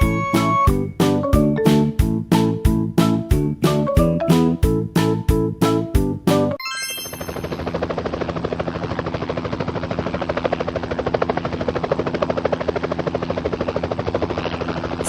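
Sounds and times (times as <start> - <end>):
helicopter engine hum: 7.1 - 15.0
helicopter rotor blades chopping: 7.1 - 15.0.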